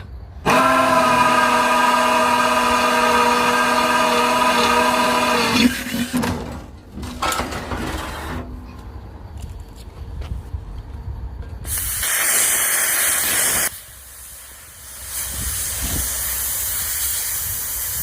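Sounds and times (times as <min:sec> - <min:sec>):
electric drill whining: 0:00.4 - 0:05.9.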